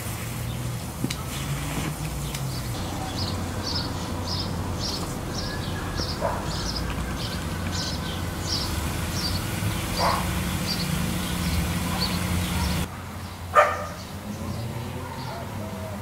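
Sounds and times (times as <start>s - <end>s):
small bird chirping: 2.2s - 14.1s.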